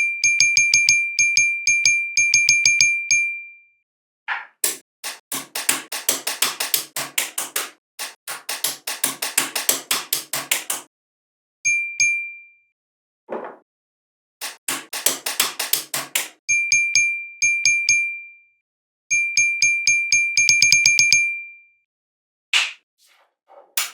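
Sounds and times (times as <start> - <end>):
fast sharp clicks: 4.6 - 10.9, 14.4 - 16.4.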